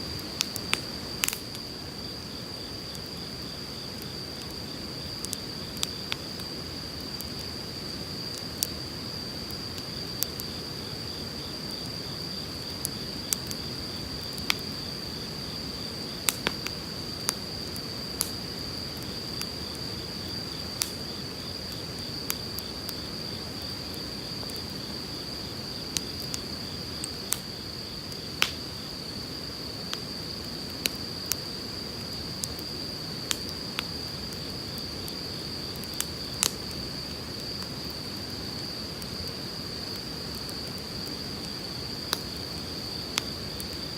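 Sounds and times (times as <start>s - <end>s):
firewood crackling and popping: 0.0s - 43.9s
high insect trill: 0.0s - 43.9s.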